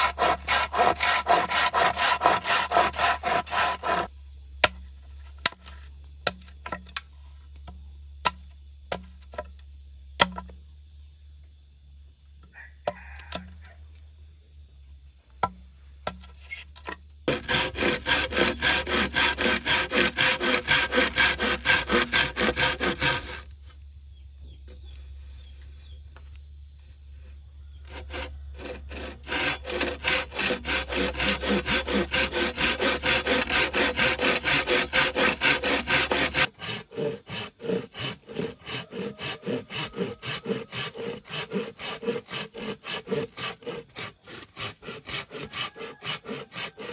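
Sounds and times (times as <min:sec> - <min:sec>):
hand saw cutting wood: 0:00.0 - 0:04.1, 0:17.3 - 0:23.5, 0:27.9 - 0:46.9.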